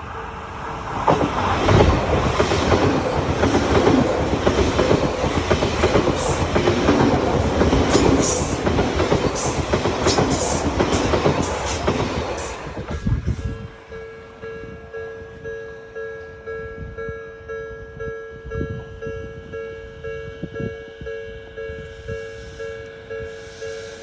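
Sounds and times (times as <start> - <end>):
train wheels clattering over rail joints: 0.5 - 13.4.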